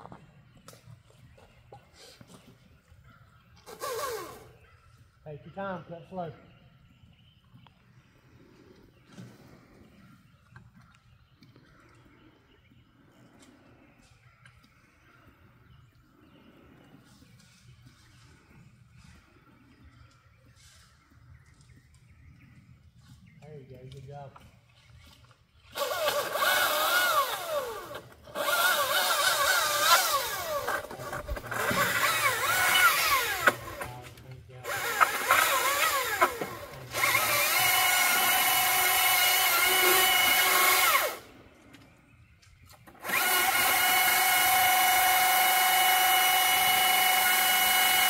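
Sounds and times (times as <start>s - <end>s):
chainsaw cutting a tree limb: 3.6s - 4.6s, 25.7s - 41.3s, 42.7s - 48.0s.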